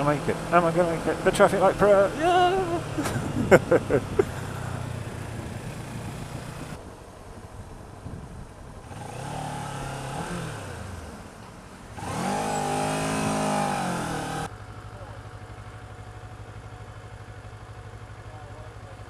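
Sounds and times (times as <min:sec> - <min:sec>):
steady engine note: 0:00.0 - 0:06.8, 0:08.9 - 0:14.5
road and wind noise: 0:00.0 - 0:18.9
motorcycle engine running: 0:00.0 - 0:19.0.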